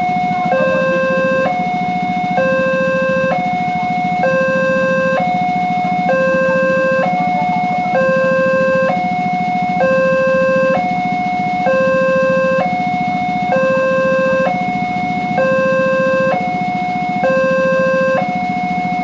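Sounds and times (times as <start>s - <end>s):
level-crossing warning alarm: 0.0s - 19.0s.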